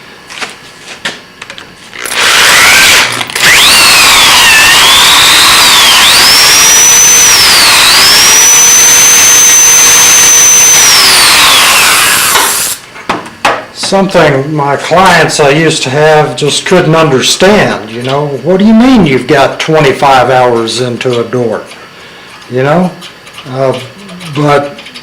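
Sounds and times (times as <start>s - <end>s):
electric drill whining: 2.0s - 12.8s.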